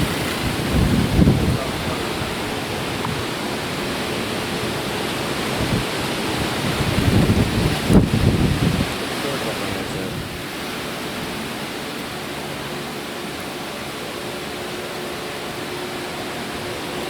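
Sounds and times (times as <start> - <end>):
storm wind rushing: 0.0 - 11.8
wind buffeting microphone: 0.0 - 17.0.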